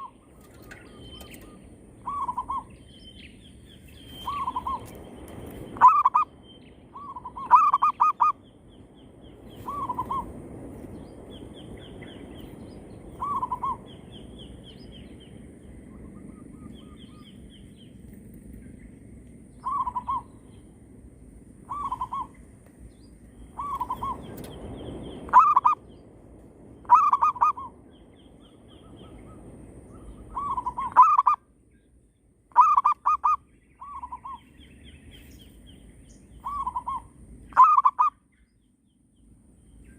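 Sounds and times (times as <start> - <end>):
doves cooing: 0.0 - 2.7, 4.1 - 4.9, 5.8 - 6.3, 6.9 - 8.4, 23.5 - 24.4, 25.3 - 25.8, 26.8 - 27.7, 30.0 - 31.4, 32.5 - 34.4, 36.4 - 38.1
small birds chirping: 0.0 - 20.7, 21.7 - 39.9.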